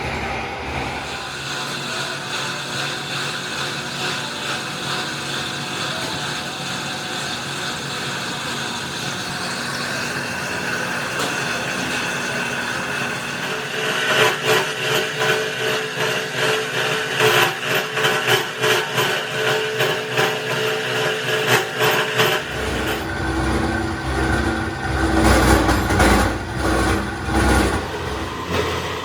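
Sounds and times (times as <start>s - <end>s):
rhythmic pulsing: 0.0s - 2.2s, 22.2s - 29.0s
machinery humming: 0.0s - 5.1s, 5.8s - 29.0s.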